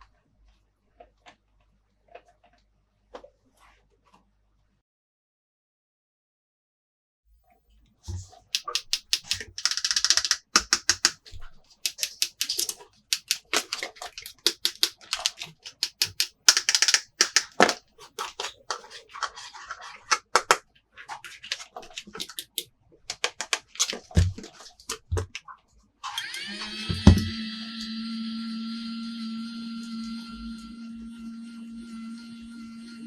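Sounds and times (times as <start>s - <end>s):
plastic toy pieces clicking: 8.6s - 18.9s, 21.5s - 24.2s
packaging rustling: 8.6s - 20.2s.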